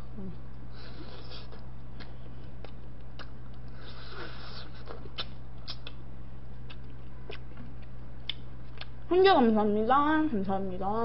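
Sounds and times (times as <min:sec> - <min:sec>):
low electrical hum: 0:00.0 - 0:11.0
wet chewing clicks and smacks: 0:01.3 - 0:03.8, 0:04.7 - 0:09.0.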